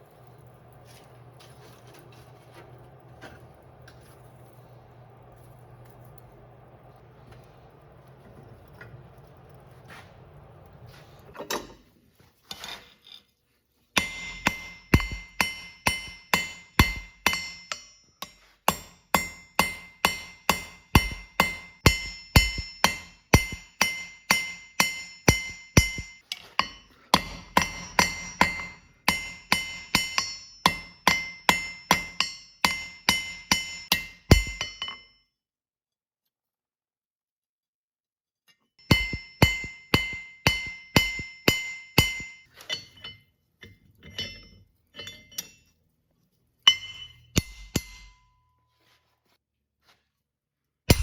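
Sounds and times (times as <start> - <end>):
hammer striking anvil: 14.0 - 35.2, 38.8 - 43.3, 46.7 - 48.5.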